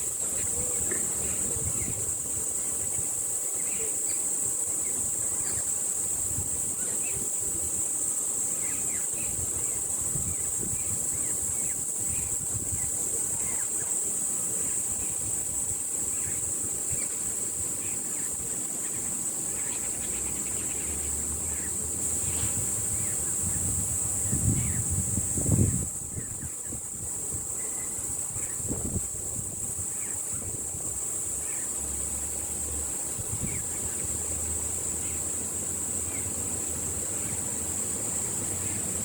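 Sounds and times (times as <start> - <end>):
high-pitched insect buzz: 0.0 - 39.0
wind on microphone: 0.4 - 3.4, 8.9 - 13.6, 22.1 - 31.1, 33.1 - 34.2.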